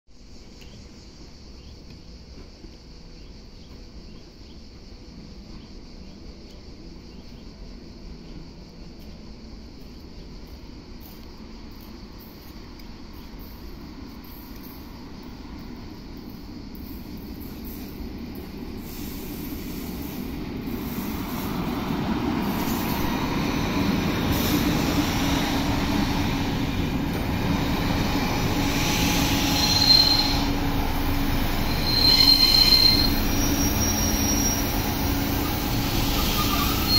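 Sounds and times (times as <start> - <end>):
train rumbling: 0.1 - 36.9
train wheel squeals: 13.2 - 36.9.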